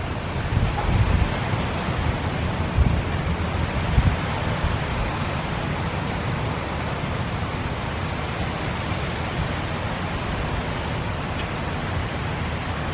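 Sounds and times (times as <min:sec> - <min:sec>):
low thunder rumble: 0:00.0 - 0:05.2
rain hiss: 0:00.0 - 0:12.9.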